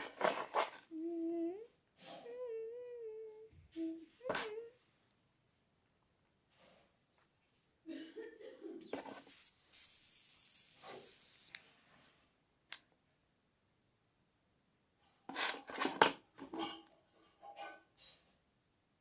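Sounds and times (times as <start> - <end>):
hiss: 8.8 - 11.6.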